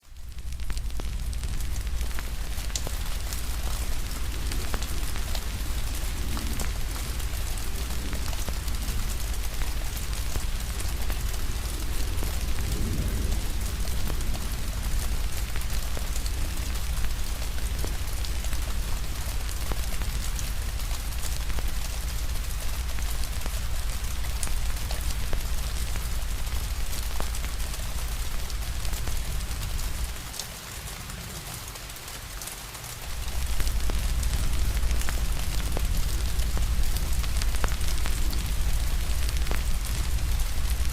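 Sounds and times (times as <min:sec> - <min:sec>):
wood fire crackling: 0:00.0 - 0:31.2, 0:32.9 - 0:40.9
steady rain: 0:00.0 - 0:40.9
low rumble: 0:00.2 - 0:30.2, 0:33.1 - 0:40.9.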